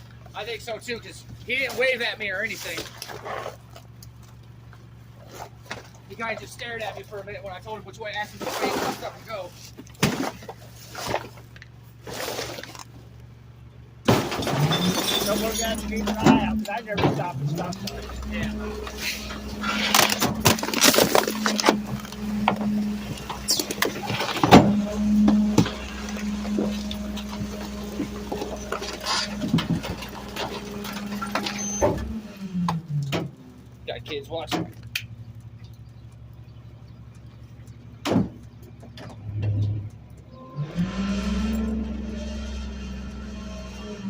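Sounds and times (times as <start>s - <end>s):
garbage truck engine hum: 0.0s - 44.0s
clanks and rattles: 14.0s - 44.0s
high squeak: 14.5s - 16.8s, 17.8s - 32.4s, 40.3s - 44.0s.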